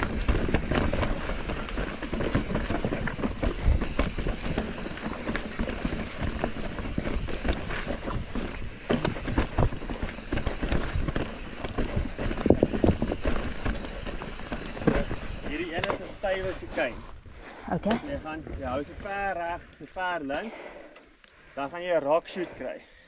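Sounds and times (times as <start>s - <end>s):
bike clattering and rattling: 0.0s - 17.1s
tyres crunching over stones: 0.0s - 19.6s.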